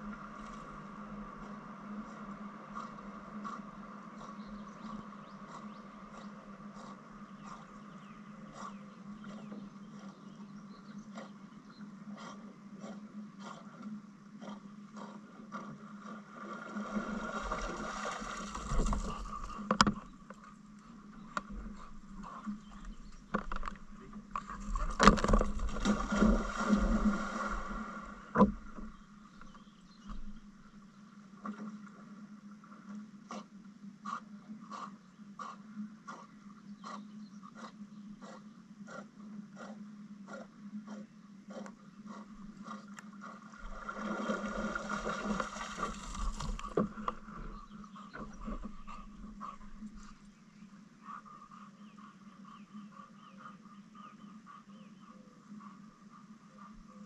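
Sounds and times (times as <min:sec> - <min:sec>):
water splashing: 0:16.3 - 0:20.1, 0:23.4 - 0:29.0, 0:43.6 - 0:47.5
paddle knocking on canoe: 0:28.3 - 0:29.0.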